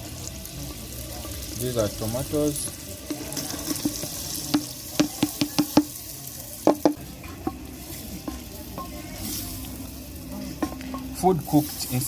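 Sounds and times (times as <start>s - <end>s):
faint frying sizzle: 0.0s - 12.0s
stirring food in a pot: 0.5s - 12.0s
spoon knocking against pot: 3.1s - 5.9s, 6.6s - 7.6s.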